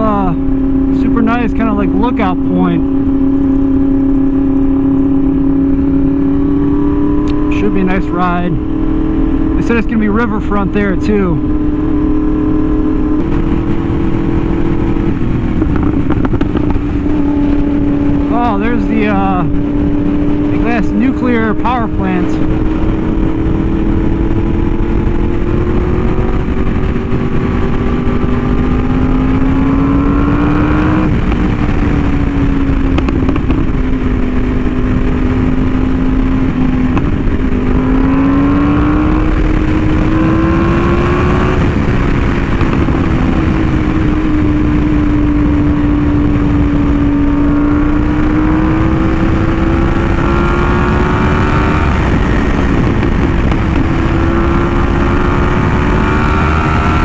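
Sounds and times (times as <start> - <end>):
motorcycle engine cruising: 0.0 - 57.0
wind rush: 0.0 - 57.0.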